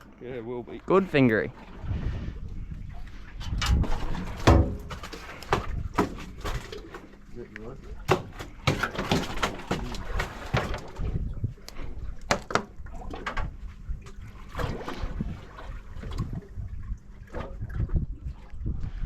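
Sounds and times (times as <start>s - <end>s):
water slapping boat hull: 0.1s - 19.0s
knocks and clatter on boat: 3.3s - 11.4s, 12.2s - 16.6s, 17.3s - 18.1s.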